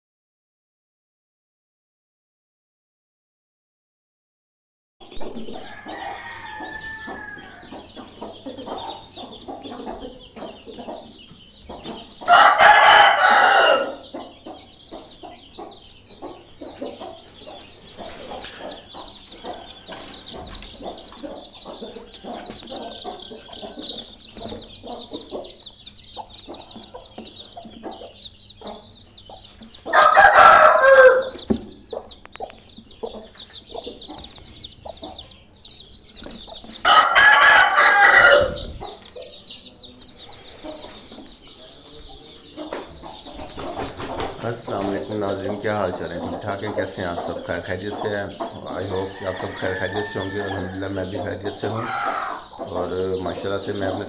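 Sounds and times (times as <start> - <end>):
chicks peeping: 5.0 - 54.0
hens clucking: 5.1 - 54.0
rooster crowing: 5.4 - 7.7, 12.3 - 14.1, 29.9 - 31.4, 36.8 - 38.9, 49.0 - 51.0, 51.6 - 52.5.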